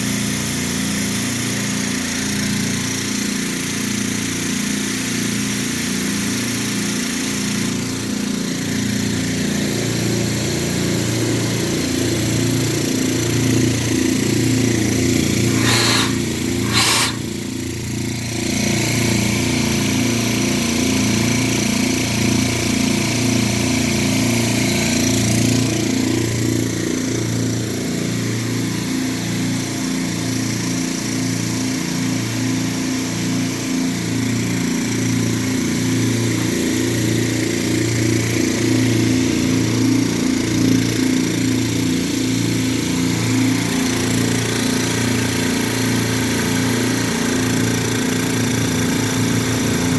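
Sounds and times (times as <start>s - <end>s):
air compressor pulsing hum: 15.2s - 17.4s.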